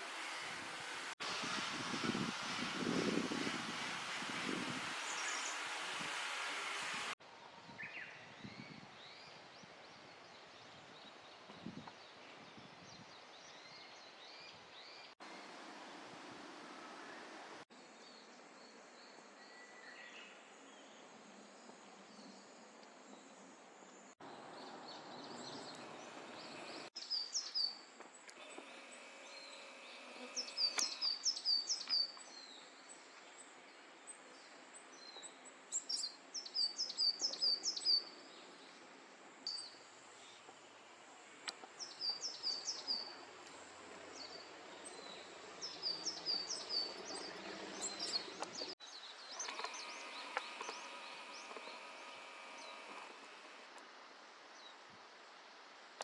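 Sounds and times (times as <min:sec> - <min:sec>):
steady outdoor hiss: 0:00.0 - 0:56.0
songbird singing: 0:16.8 - 0:38.8, 0:39.4 - 0:53.8.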